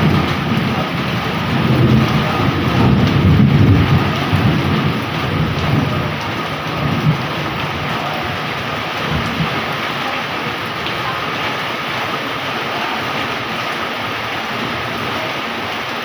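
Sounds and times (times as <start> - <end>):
thunder rumble: 0.0 - 12.4
heavy rain pouring: 0.0 - 16.0.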